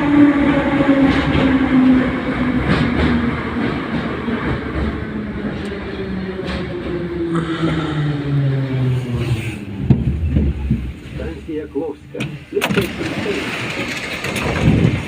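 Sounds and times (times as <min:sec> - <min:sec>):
sharp clicks from rails: 0:00.0 - 0:07.8
train traction motors whining: 0:00.0 - 0:12.4
wheel and track rumble: 0:00.0 - 0:15.0.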